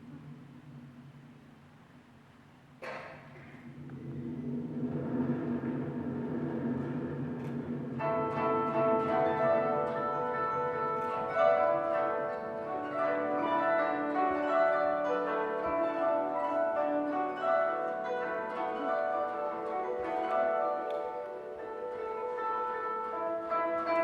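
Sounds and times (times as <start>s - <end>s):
koto plucked notes: 6.5s - 24.0s.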